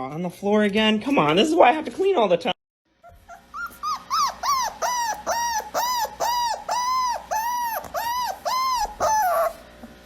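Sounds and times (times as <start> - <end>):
dog whining and yelping: 3.0 - 9.7.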